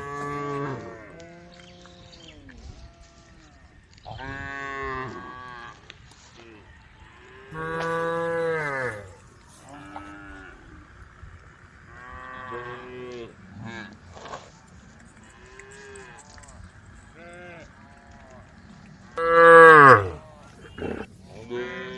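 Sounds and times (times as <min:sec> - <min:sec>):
cattle mooing: 0:07.5 - 0:10.4, 0:19.2 - 0:21.1.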